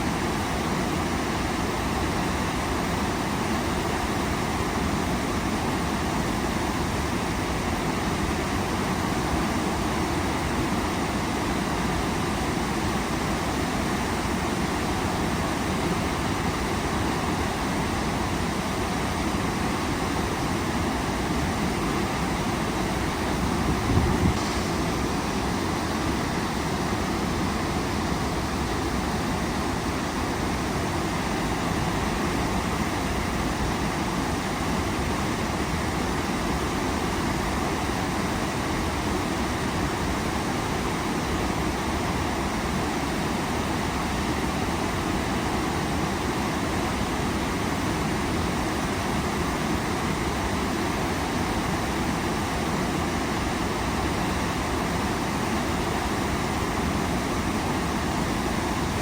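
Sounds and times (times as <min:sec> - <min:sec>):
waterfall rushing: 0:21.8 - 0:36.4.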